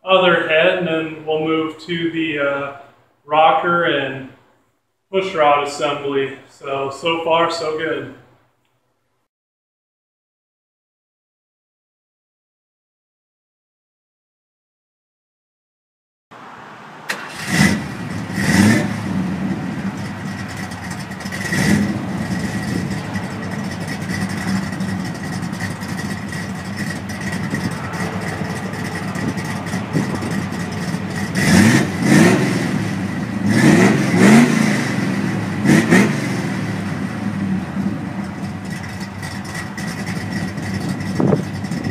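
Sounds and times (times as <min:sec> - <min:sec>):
car engine idling and revving: 0:16.3 - 0:41.9.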